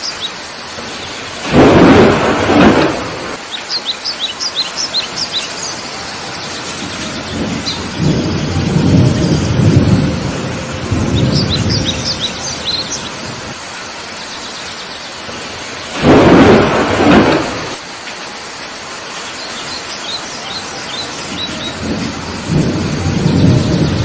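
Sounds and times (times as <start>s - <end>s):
birds chirping: 0.0s - 9.8s, 10.9s - 17.8s, 19.2s - 24.0s
heavy rain: 0.0s - 24.0s
thunder rumbling: 0.8s - 3.4s, 6.2s - 13.6s, 15.3s - 17.9s, 21.2s - 24.0s.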